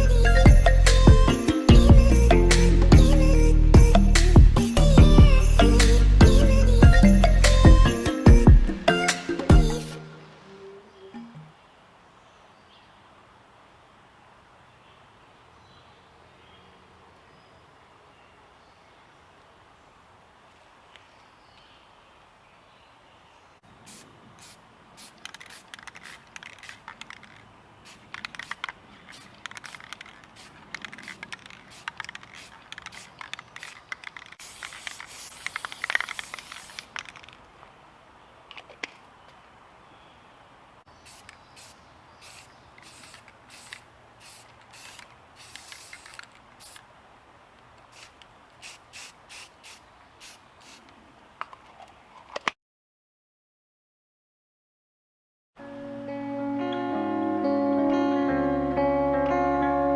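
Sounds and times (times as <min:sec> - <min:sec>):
spray paint can hissing: 0:23.8 - 0:37.3, 0:41.0 - 0:46.8, 0:47.9 - 0:50.8.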